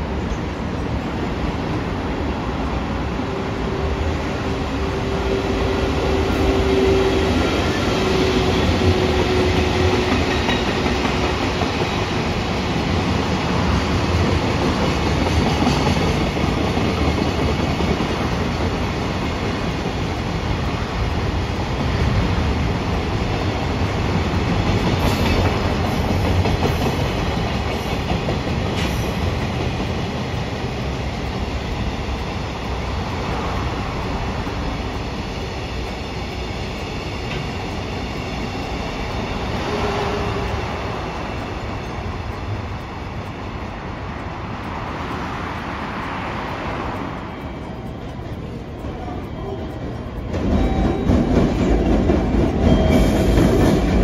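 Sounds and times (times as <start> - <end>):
train wheels clacking on rails: 0.0 - 54.0.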